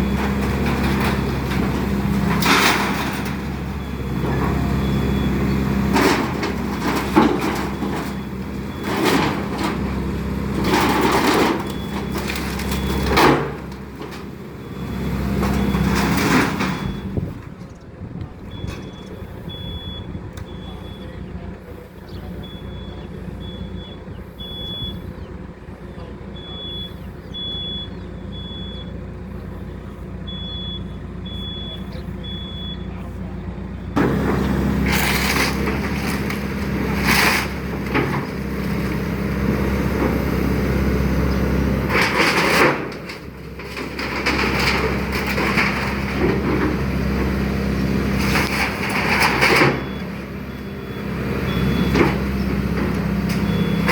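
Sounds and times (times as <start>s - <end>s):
crunching crashes of material breaking: 0.0s - 17.6s, 33.9s - 53.9s
excavator diesel engine running: 0.0s - 53.9s.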